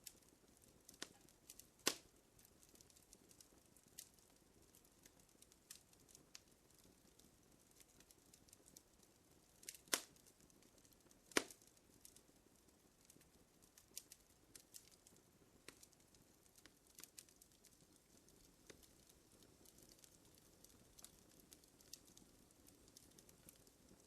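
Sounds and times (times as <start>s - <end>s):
fire crackling faintly: 0.0s - 24.0s.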